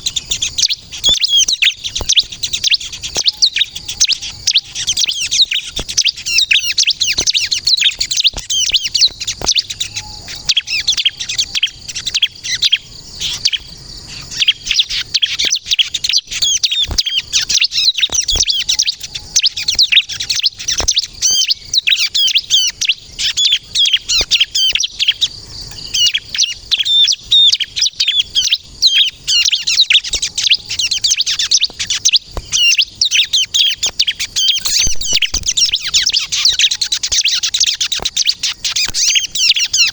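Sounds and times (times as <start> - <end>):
bird chirping and trilling: 0.0 - 39.9
short clicks: 34.6 - 36.0, 38.8 - 39.5.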